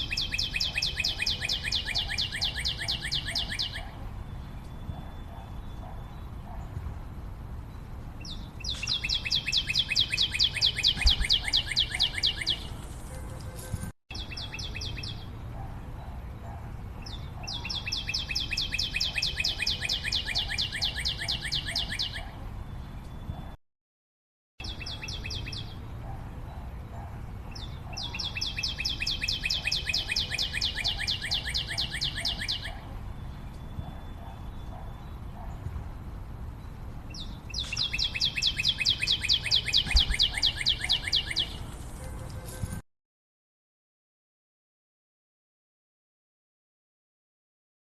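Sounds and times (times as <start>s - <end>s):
songbird trilling: 0.0s - 6.6s, 8.2s - 12.8s, 14.1s - 15.3s, 17.0s - 22.3s, 24.6s - 25.8s, 27.5s - 35.5s, 37.1s - 41.7s.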